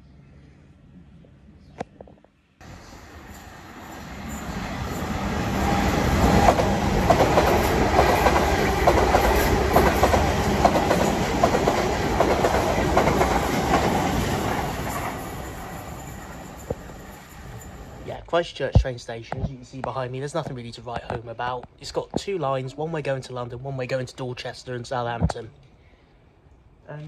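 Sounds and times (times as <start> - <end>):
train passing: 2.6 - 18.1
wheels clattering over rails: 4.2 - 18.0.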